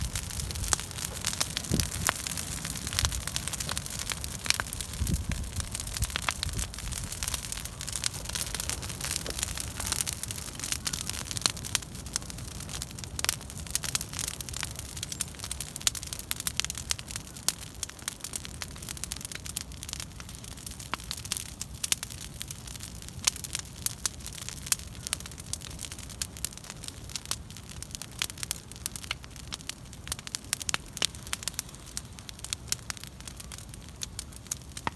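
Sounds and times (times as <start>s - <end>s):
hiss of burning: 0.0s - 17.6s, 27.6s - 34.9s
bonfire crackling and popping: 0.0s - 34.9s.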